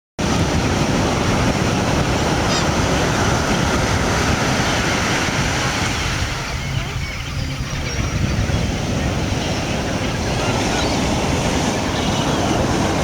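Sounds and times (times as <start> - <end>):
flock of birds calling: 0.6 - 13.0
high bird chirps: 6.4 - 8.7.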